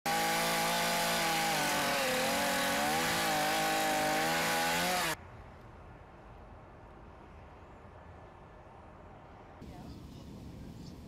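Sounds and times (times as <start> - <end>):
small engine running: 0.1 - 5.2.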